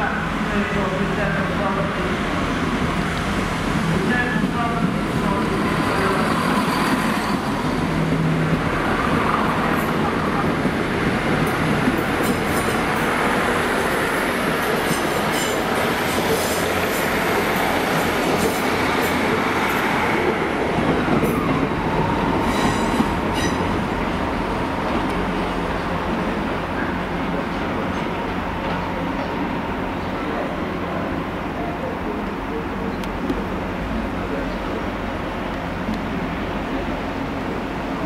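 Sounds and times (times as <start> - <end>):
trains running past: 0.0 - 38.0
high-pitched wheel squeal: 6.4 - 7.8.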